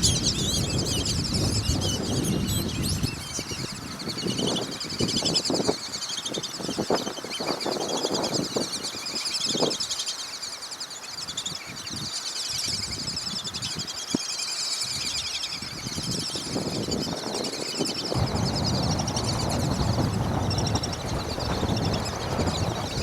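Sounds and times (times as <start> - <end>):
ducks whistling: 0.0 - 7.0, 16.4 - 23.0
wind gusts on microphone: 0.0 - 9.9, 11.2 - 14.2, 14.8 - 23.0.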